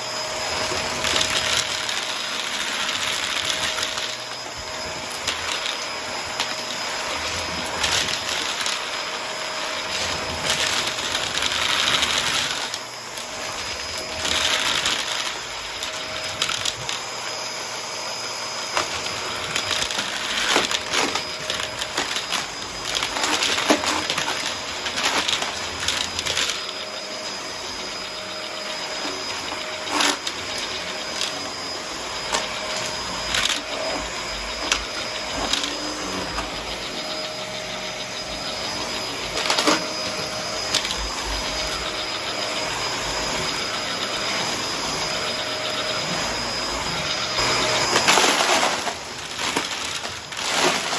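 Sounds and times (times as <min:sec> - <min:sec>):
vacuum cleaner running: 0:00.0 - 0:50.9.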